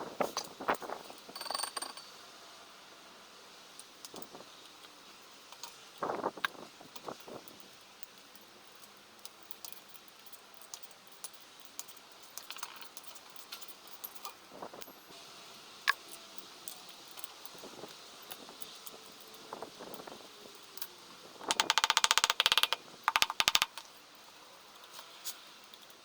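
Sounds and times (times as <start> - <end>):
metallic clicks of tools: 1.4 - 2.1, 21.5 - 23.9.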